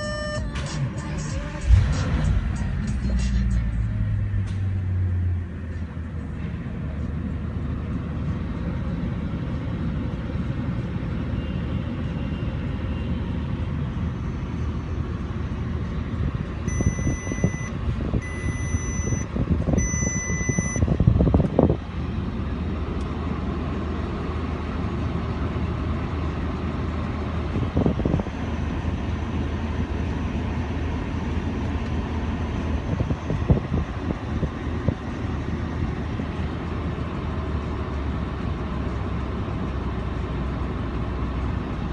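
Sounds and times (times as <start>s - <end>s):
electronic warning beeps: 0.0s - 0.6s, 16.7s - 20.8s
car engine idling: 0.0s - 41.9s.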